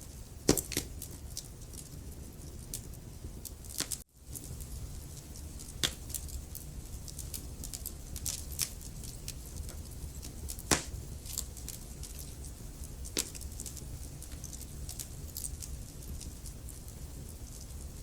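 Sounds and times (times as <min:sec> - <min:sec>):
low steady rumble: 0:00.0 - 0:18.0
wood fire crackling: 0:00.0 - 0:18.0.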